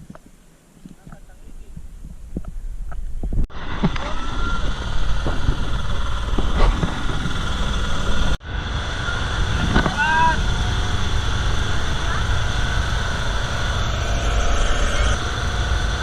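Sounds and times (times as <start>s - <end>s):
motorboat engine running: 3.6s - 16.0s.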